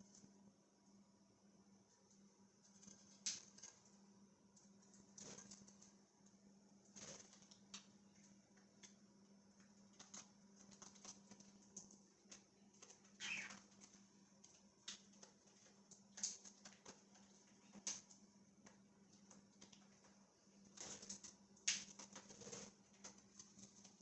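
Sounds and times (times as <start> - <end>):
steady low hum: 0.0 - 24.0
budgerigars chirping: 13.2 - 13.6.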